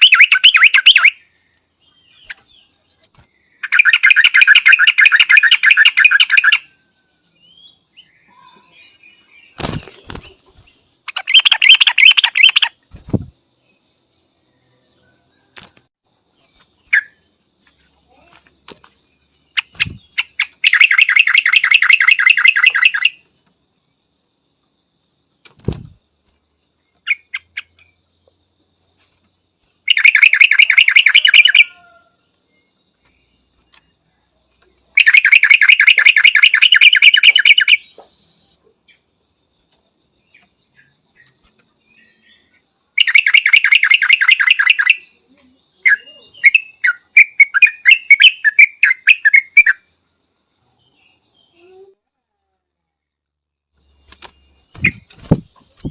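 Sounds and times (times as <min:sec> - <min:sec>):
bird trilled calls: 0:00.0 - 0:01.3, 0:03.6 - 0:06.8, 0:08.0 - 0:13.3, 0:19.5 - 0:23.2, 0:29.9 - 0:32.0, 0:34.9 - 0:38.5, 0:43.0 - 0:45.2, 0:45.8 - 0:49.8, 0:54.2 - 0:55.9
short varied bird chirps: 0:00.0 - 0:06.8, 0:07.4 - 0:13.8, 0:19.2 - 0:23.2, 0:34.7 - 0:39.1, 0:53.8 - 0:55.9.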